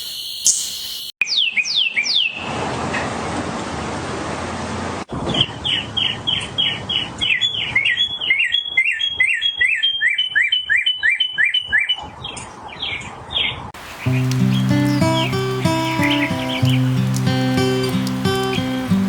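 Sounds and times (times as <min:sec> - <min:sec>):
songbird chirping: 0:00.0 - 0:02.5, 0:05.4 - 0:19.0
steady hiss: 0:13.8 - 0:19.0.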